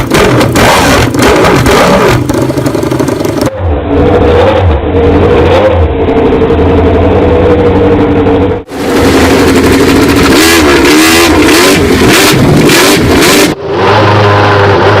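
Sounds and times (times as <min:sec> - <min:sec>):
race motorcycle engines revving: 0:00.0 - 0:15.0.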